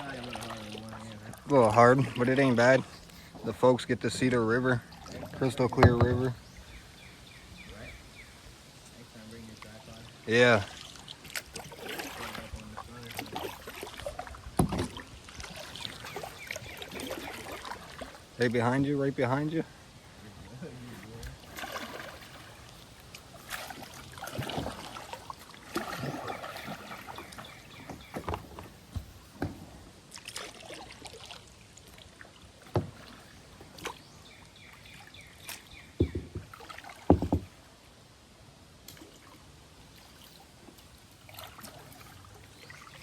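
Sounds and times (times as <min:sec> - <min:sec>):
paddle splashing in water: 0:00.0 - 0:03.7, 0:04.8 - 0:07.1, 0:09.6 - 0:18.8, 0:20.8 - 0:37.7, 0:38.8 - 0:43.0
sharp knocks: 0:05.8 - 0:06.4, 0:36.0 - 0:36.5, 0:37.1 - 0:37.5.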